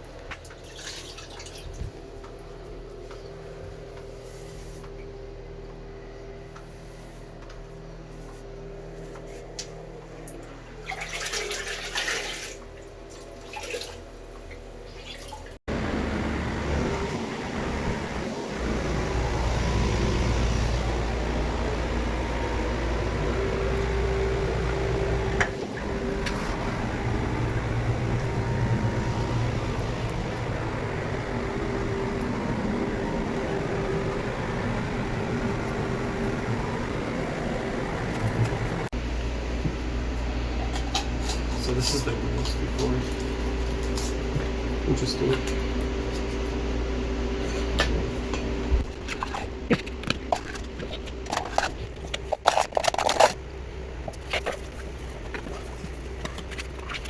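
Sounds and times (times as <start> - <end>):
water running: 0.4 - 1.9, 10.2 - 46.0
low hum: 15.7 - 57.0.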